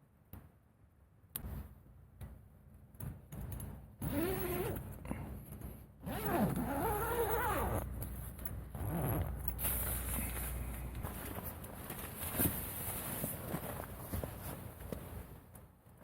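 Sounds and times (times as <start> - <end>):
zipper being pulled: 4.0 - 4.9, 6.0 - 7.9, 8.7 - 9.8.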